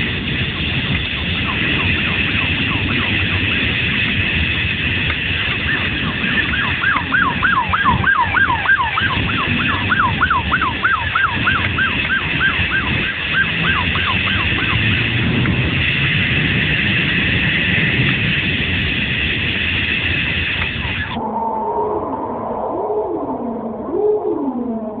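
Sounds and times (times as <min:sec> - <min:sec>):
steady low rumble: 0:00.0 - 0:25.0
police siren yelping: 0:00.5 - 0:03.9, 0:05.4 - 0:15.0, 0:20.9 - 0:25.0.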